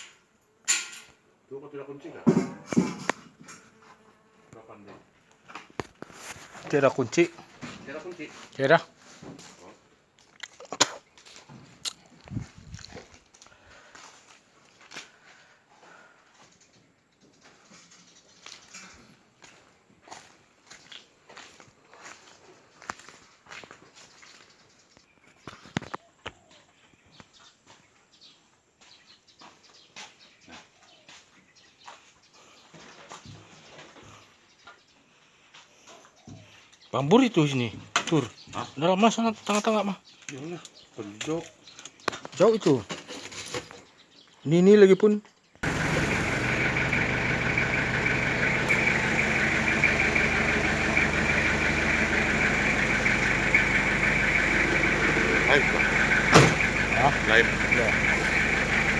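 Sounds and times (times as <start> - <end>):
engine idling: 45.6 - 58.9.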